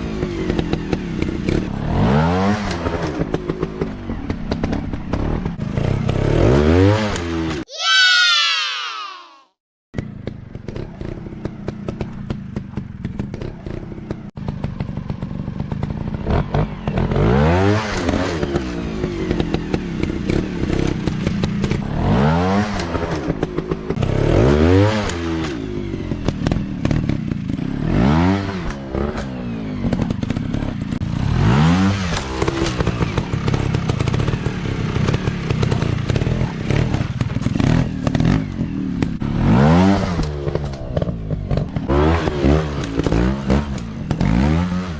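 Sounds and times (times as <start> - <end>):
dirt bike engines revving: 16.3 - 44.9.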